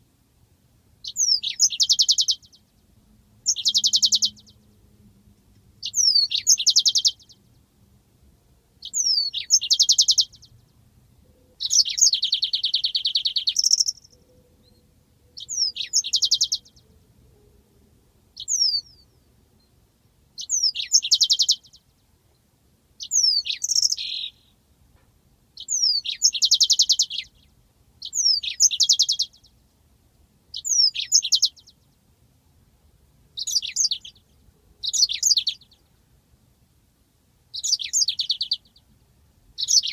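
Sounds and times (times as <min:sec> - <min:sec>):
canary singing: 0:01.0 - 0:02.8, 0:03.4 - 0:04.9, 0:05.8 - 0:07.6, 0:08.8 - 0:17.5, 0:18.4 - 0:19.7, 0:20.4 - 0:21.9, 0:23.0 - 0:24.6, 0:25.6 - 0:29.6, 0:30.5 - 0:31.8, 0:33.4 - 0:35.9, 0:37.5 - 0:38.9, 0:39.6 - 0:39.9.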